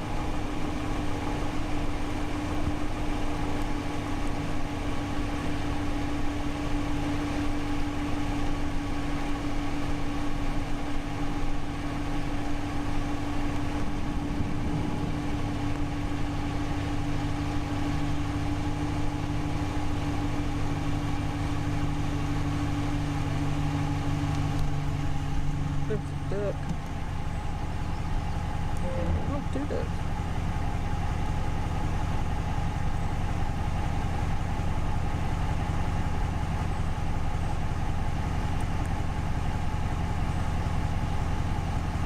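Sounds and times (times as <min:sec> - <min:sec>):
car engine hum: 0:00.0 - 0:42.0
road noise: 0:10.6 - 0:36.0.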